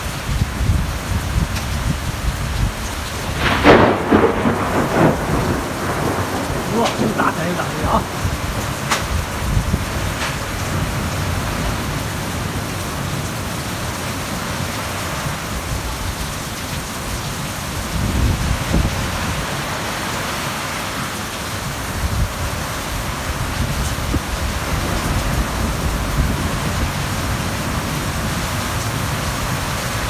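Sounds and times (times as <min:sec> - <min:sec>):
heavy rain pouring: 0:00.0 - 0:30.0
thunder rumble: 0:00.4 - 0:12.6.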